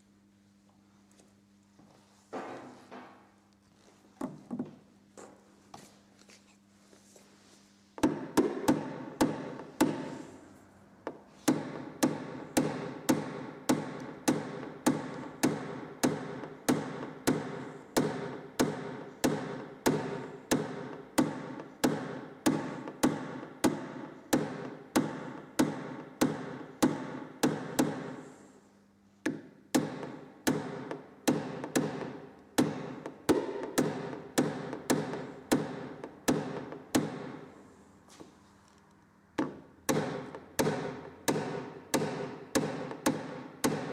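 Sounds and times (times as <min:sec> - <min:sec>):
hammer tapping sheet metal: 0:11.1 - 0:28.3, 0:29.3 - 0:37.6, 0:39.4 - 0:43.9.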